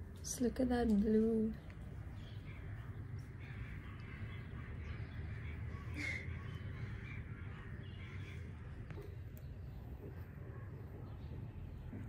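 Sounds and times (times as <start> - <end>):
distant bird calls: 0.3 - 12.0.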